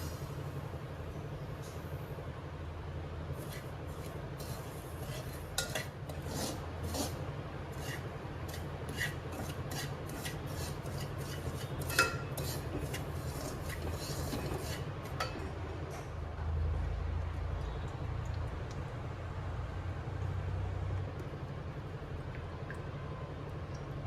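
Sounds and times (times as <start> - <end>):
steady low hum: 0.0 - 24.0
scraping and rubbing strokes: 3.4 - 15.0.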